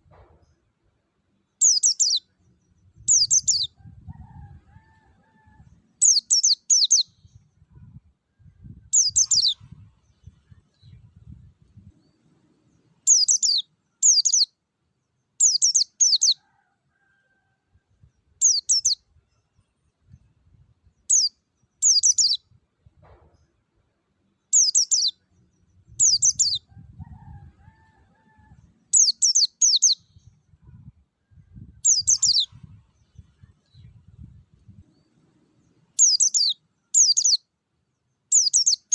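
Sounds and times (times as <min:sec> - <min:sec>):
bird singing high chirps: 0:01.6 - 0:03.8, 0:06.0 - 0:07.4, 0:08.4 - 0:11.0, 0:13.0 - 0:14.5, 0:15.4 - 0:16.4, 0:18.4 - 0:19.0, 0:21.0 - 0:22.4, 0:24.5 - 0:26.7, 0:28.9 - 0:30.4, 0:31.6 - 0:33.9, 0:36.0 - 0:37.5, 0:38.3 - 0:38.9.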